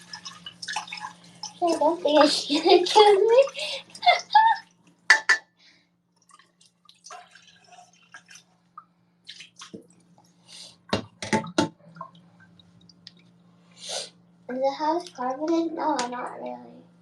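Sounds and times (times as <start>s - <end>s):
water dripping and splashing: 0.0s - 5.5s, 6.1s - 13.5s
faint steady hum: 0.0s - 17.0s
dishes clinking and knocking: 10.9s - 11.8s.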